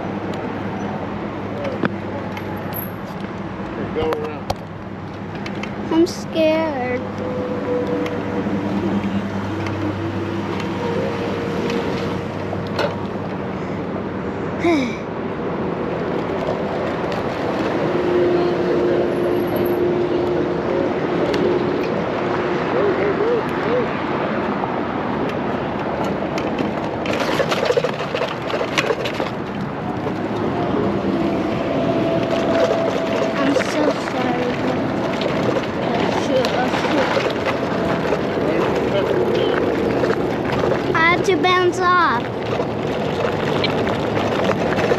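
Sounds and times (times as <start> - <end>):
wind and bicycle rolling noise: 0.0 - 14.5, 15.1 - 44.9
road noise: 0.0 - 44.9
traffic engine hum: 0.0 - 44.9
clicks and rattles: 26.0 - 30.4.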